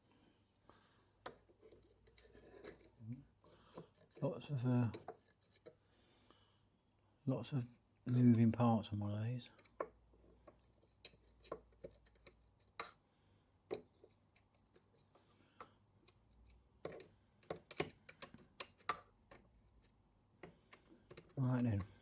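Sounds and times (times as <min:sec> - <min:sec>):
hands clicking and tapping model: 0:04.8 - 0:05.8, 0:09.5 - 0:13.0, 0:13.6 - 0:22.0.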